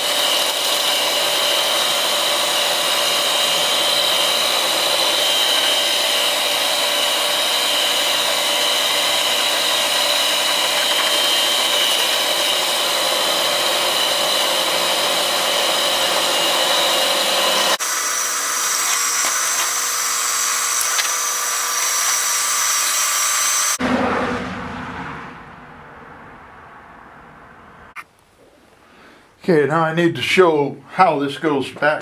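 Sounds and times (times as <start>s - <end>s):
electric drill boring steel: 0.0s - 23.8s.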